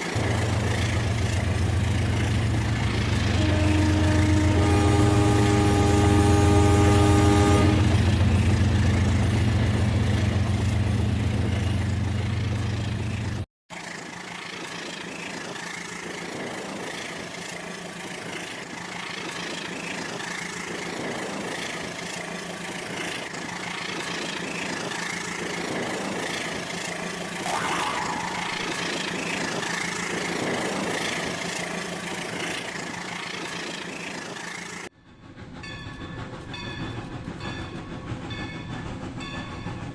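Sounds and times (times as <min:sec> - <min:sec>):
toy train horn chord: 0:03.4 - 0:07.9
toy train running hum: 0:13.0 - 0:27.6, 0:28.3 - 0:39.8.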